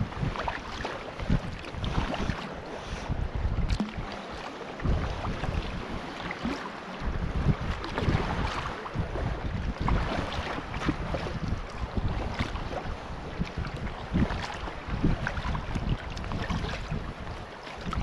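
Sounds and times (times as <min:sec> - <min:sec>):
small water splashes: 0:00.0 - 0:02.6, 0:03.6 - 0:09.0, 0:09.8 - 0:18.0
kayak on river water: 0:00.0 - 0:18.0
wind rumbling on microphone: 0:00.0 - 0:18.0.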